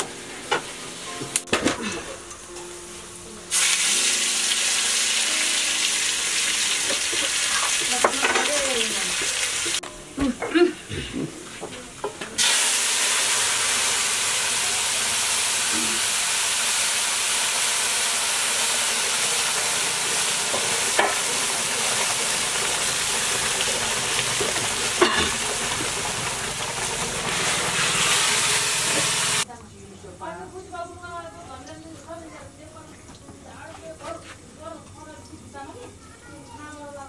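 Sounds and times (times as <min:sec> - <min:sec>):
food sizzling in hot oil: 0:00.0 - 0:10.2, 0:11.4 - 0:29.5.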